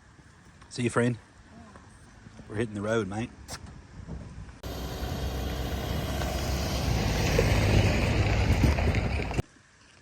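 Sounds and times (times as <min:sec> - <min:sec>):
vehicle road and wind noise: 0:02.1 - 0:09.5.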